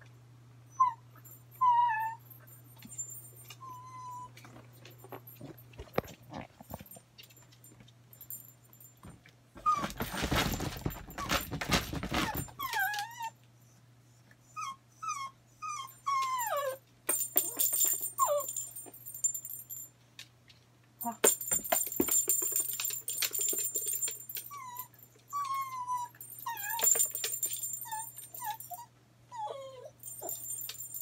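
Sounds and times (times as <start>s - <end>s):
small dog whining: 0.7s - 2.5s, 3.5s - 4.6s, 9.6s - 10.2s, 12.1s - 13.8s, 14.4s - 16.8s, 18.2s - 18.6s, 24.4s - 30.7s
rustling and scuffling: 4.4s - 13.0s.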